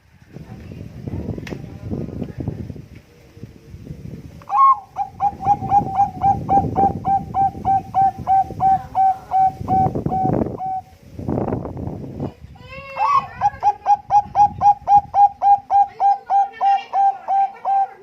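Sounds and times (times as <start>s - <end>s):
dove cooing: 4.5s - 10.9s, 13.0s - 18.0s.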